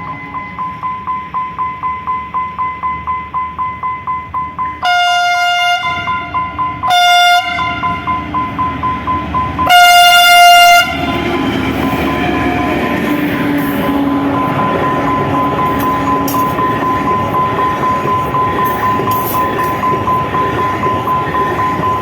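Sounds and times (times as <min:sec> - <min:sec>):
warning bell ringing: 0:00.0 - 0:05.0, 0:06.0 - 0:22.0
locomotive air horn blasts: 0:04.8 - 0:08.1, 0:09.6 - 0:11.3.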